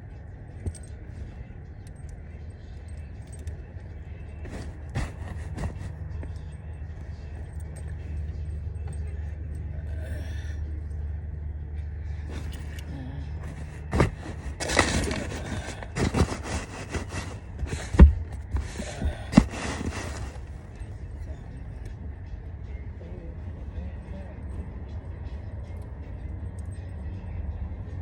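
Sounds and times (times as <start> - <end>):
steady low hum: 0.0 - 28.0
objects being handled: 4.3 - 8.2, 12.3 - 20.9.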